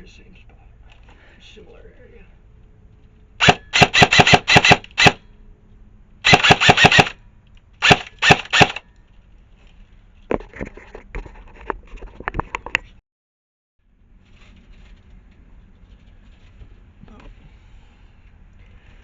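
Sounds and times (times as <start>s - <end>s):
airsoft rifle firing bursts: 3.4s - 5.2s, 6.2s - 7.2s, 7.8s - 8.8s.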